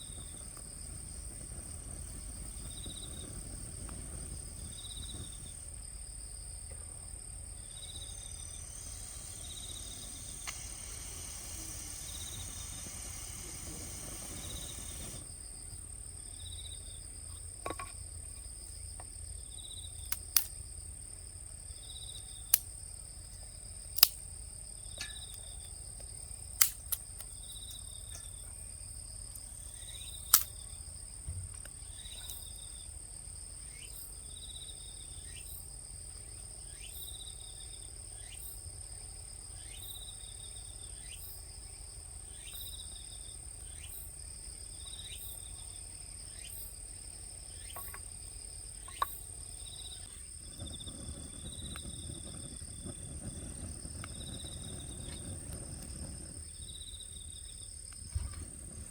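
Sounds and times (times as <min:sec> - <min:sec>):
low rumble: 0:00.0 - 0:06.3
insect chirp: 0:00.0 - 0:58.9
insects trilling: 0:00.0 - 0:58.9
sharp cracks: 0:20.1 - 0:20.6, 0:24.0 - 0:24.3, 0:26.6 - 0:27.8, 0:30.3 - 0:30.6.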